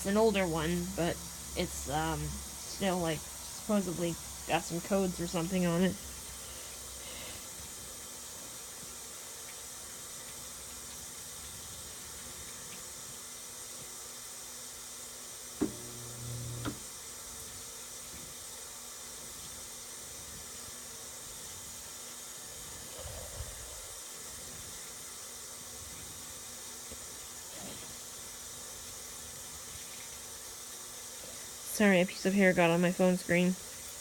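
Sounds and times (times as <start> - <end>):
water running into washing machine: 15.6 - 16.9.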